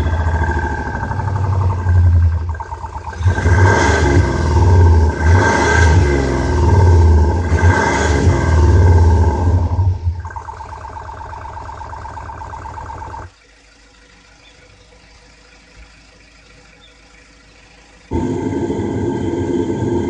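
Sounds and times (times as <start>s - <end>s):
loud low rumble: 0.0s - 10.3s, 18.1s - 20.0s
rapidly pulsing buzz: 0.0s - 20.0s
synthesized engine rev: 0.0s - 20.0s.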